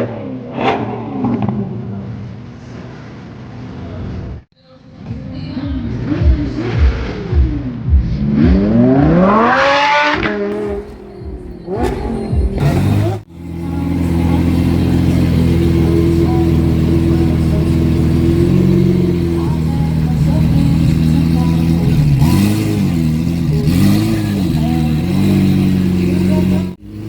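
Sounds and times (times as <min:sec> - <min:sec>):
car engine revving: 0:00.0 - 0:03.8, 0:05.9 - 0:27.0
engine idling: 0:10.5 - 0:27.0.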